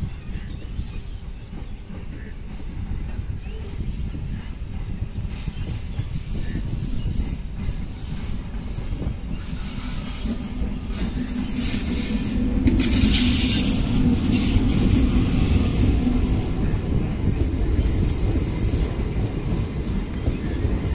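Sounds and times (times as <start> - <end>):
freight train rumbling on rails: 0.0 - 20.9
high-pitched wheel squeals: 7.7 - 12.5.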